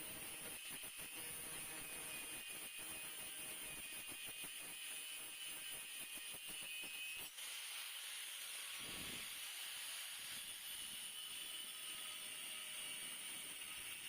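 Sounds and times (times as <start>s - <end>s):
welding arc hissing and crackling: 0.0s - 10.6s.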